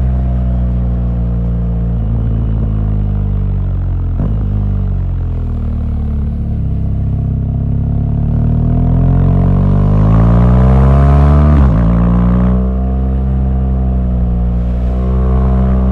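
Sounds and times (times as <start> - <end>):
motorcycle engine revving: 4.0 - 15.9.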